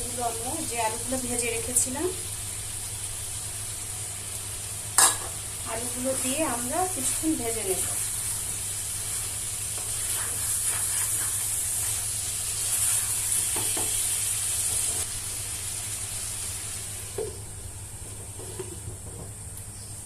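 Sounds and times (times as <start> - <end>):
food sizzling in a pan: 0.0 - 18.8
utensil scraping a pan: 9.1 - 12.1.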